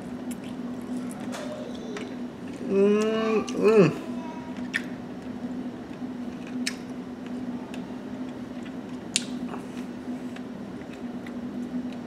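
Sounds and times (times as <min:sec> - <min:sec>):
steady low hum: 0:00.0 - 0:12.0
man chewing: 0:00.2 - 0:01.4, 0:08.3 - 0:12.0.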